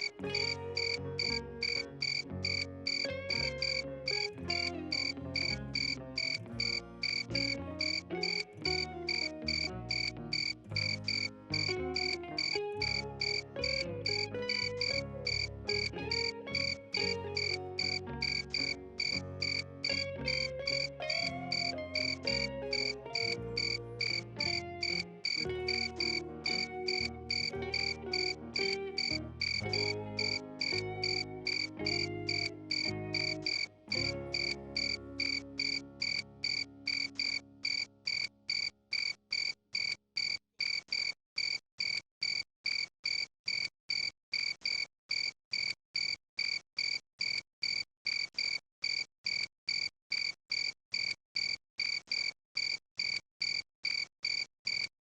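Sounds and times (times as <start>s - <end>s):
melodic background music: 0.0s - 37.9s
cricket chirping: 0.4s - 3.0s, 4.9s - 12.6s, 17.4s - 26.2s, 32.3s - 44.0s.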